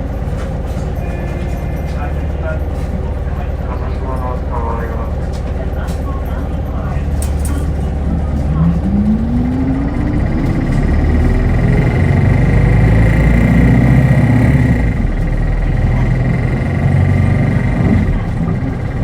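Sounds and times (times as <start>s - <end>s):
bus drivetrain rising in pitch: 0.0s - 19.0s
steady low rumble: 1.8s - 19.0s
steady high whine: 6.8s - 19.0s.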